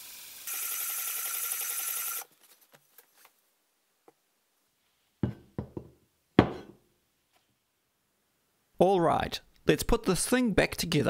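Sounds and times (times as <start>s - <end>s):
knocks on wooden workbench: 5.2s - 6.8s.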